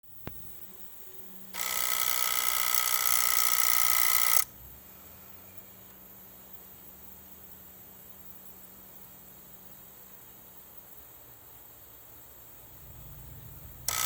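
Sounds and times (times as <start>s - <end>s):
electric buzz: 0.0s - 4.8s, 12.2s - 14.0s
faint low hum: 4.5s - 14.0s.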